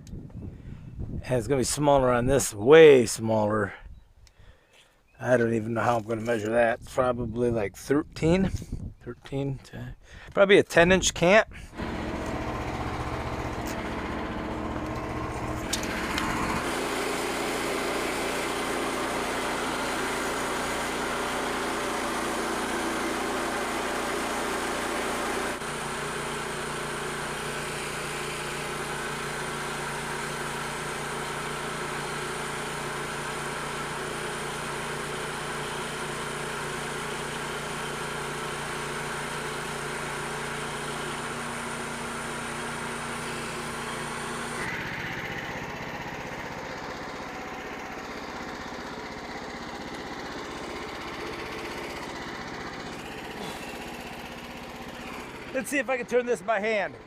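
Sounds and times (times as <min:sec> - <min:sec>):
small gasoline engine running: 0:11.7 - 0:57.0.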